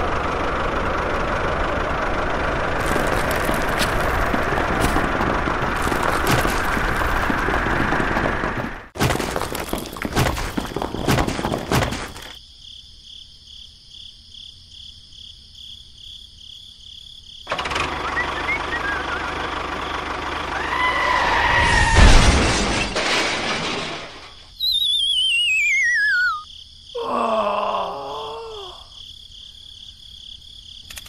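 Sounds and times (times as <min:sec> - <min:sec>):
model tractor motor running: 0:00.0 - 0:07.2, 0:17.5 - 0:20.6
cartoon whistle sliding down: 0:24.6 - 0:26.4.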